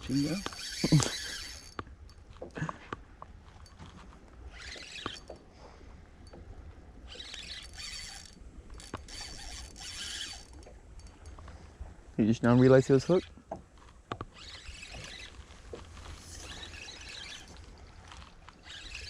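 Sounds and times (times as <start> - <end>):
fishing reel whirring: 0.0 - 2.3, 4.4 - 5.4, 7.0 - 11.4, 12.6 - 13.4, 14.2 - 19.0.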